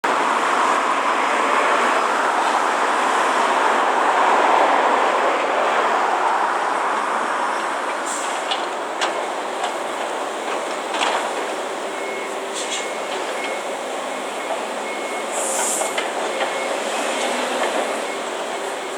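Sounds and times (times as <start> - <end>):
heavy construction machinery: 6.5 - 18.9.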